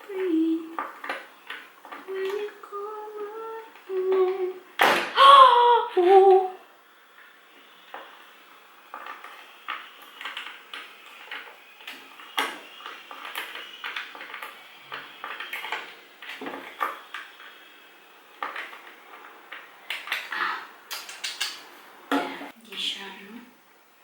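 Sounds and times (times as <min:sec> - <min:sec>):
hard objects clinking and knocking: 0:07.8 - 0:20.4.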